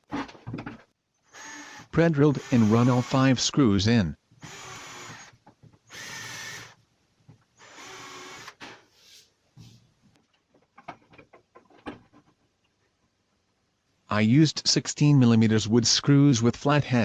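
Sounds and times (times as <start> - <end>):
electric drill driving screws: 1.3 - 3.3, 4.4 - 5.3, 5.9 - 6.8, 7.6 - 8.7.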